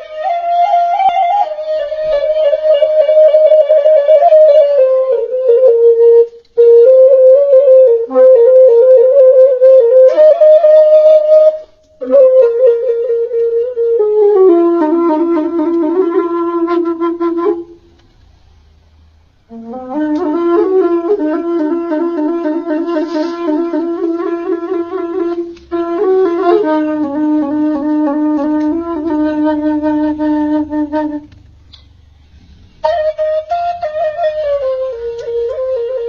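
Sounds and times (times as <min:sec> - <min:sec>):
flute-like woodwind melody: 0:00.0 - 0:18.0, 0:19.5 - 0:31.4, 0:32.7 - 0:36.0.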